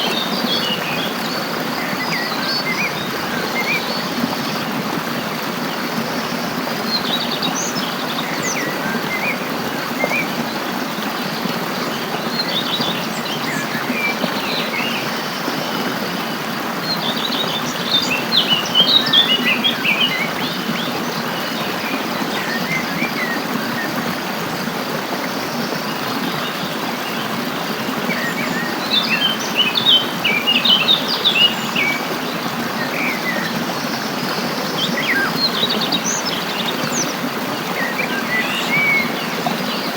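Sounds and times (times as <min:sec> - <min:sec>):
flowing stream water: 0:00.0 - 0:39.9
songbirds chirping and twittering: 0:00.0 - 0:39.9.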